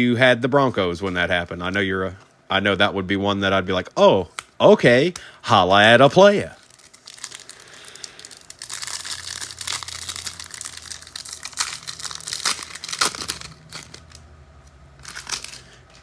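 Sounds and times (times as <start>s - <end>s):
foil wrappers crinkling and tearing: 6.5s - 14.2s, 15.0s - 16.0s.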